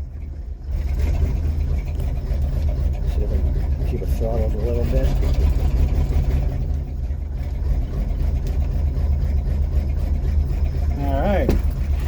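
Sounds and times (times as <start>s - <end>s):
fire engine engine rumbling: 0.0s - 12.0s.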